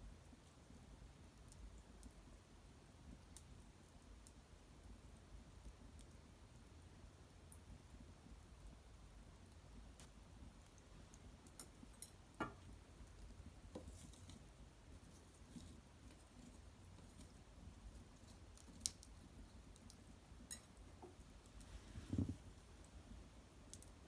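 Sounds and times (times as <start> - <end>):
faint fire crackles and pops: 0.0 - 24.0.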